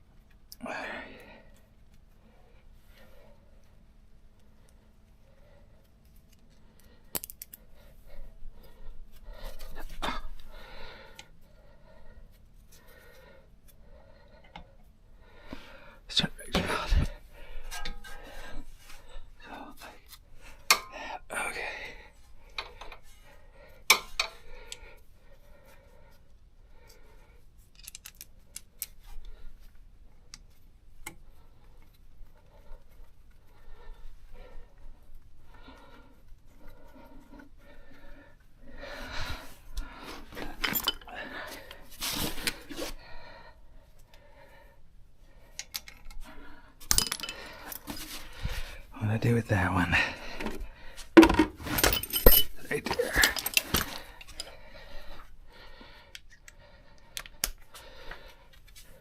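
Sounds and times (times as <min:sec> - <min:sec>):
tools rattling and scraping: 0:16.6 - 0:19.2, 0:39.0 - 0:43.0, 0:46.8 - 0:48.8, 0:50.0 - 0:54.6
tools clicking and tapping: 0:45.6 - 0:46.2.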